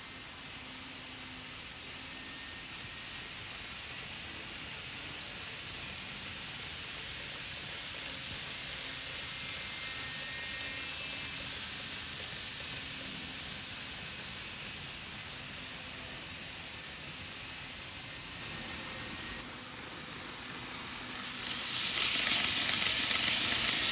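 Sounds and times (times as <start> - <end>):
model train running hiss: 0.0 - 23.9
faint thin whine: 12.7 - 23.9.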